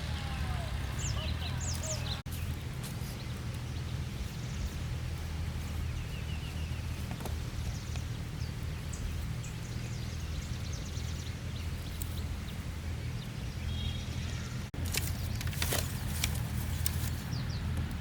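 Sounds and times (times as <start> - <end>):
steady low hum: 0.0 - 18.0
faint bird chirps: 5.6 - 14.7.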